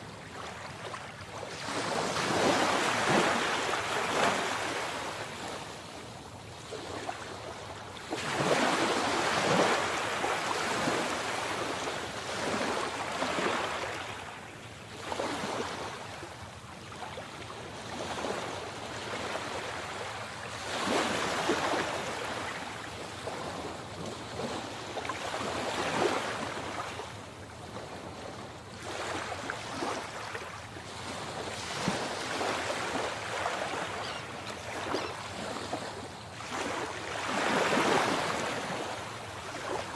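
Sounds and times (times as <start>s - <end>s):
sea waves breaking: 28.8s - 39.9s.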